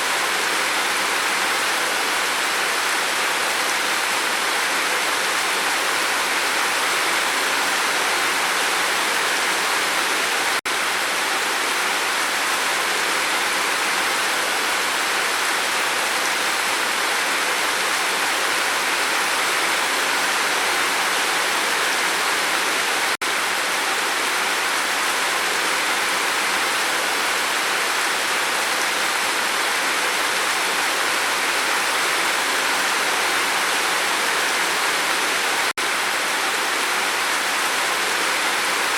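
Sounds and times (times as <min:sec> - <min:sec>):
heavy rain on a roof: 0:00.0 - 0:38.9.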